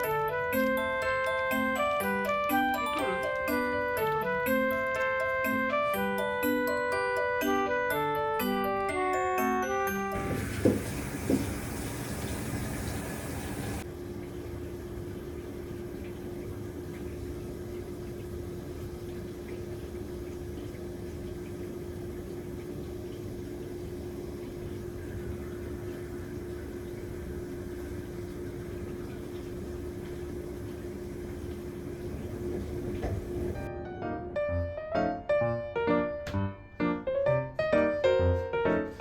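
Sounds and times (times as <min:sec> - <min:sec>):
household machine humming: 0:08.4 - 0:18.0, 0:23.5 - 0:33.7.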